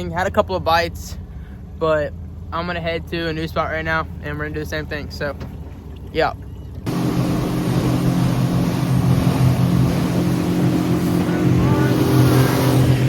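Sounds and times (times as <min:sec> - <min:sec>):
boat motor running: 0:01.2 - 0:13.0
rushing water noise: 0:06.9 - 0:13.0.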